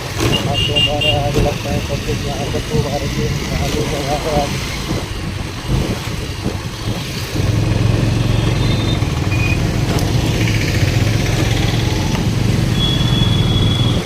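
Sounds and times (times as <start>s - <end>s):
short high beeps: 12.8s - 14.0s.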